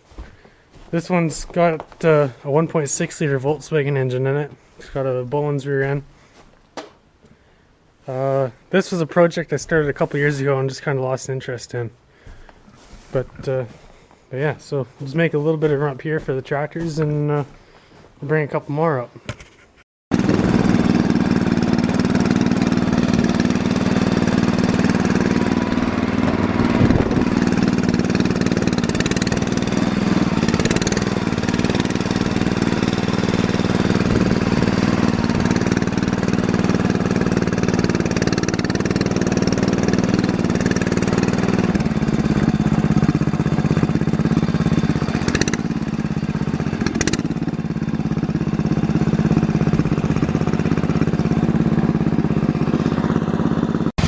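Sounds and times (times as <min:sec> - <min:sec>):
garden tractor engine running: 0:00.0 - 0:07.4, 0:08.0 - 0:18.8, 0:20.1 - 0:54.0
sharp knocks: 0:06.8 - 0:07.0.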